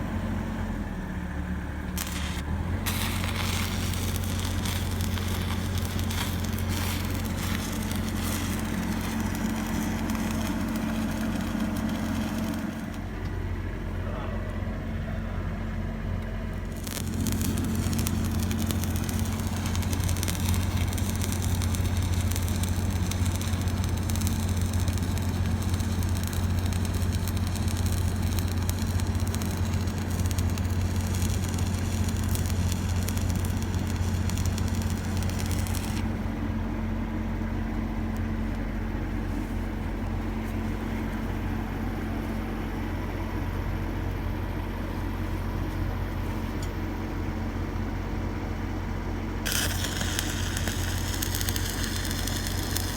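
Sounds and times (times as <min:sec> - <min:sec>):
engine running: 0:00.0 - 0:52.9
arc welding crackle and sizzle: 0:01.1 - 0:14.0, 0:16.0 - 0:48.1, 0:49.4 - 0:52.9.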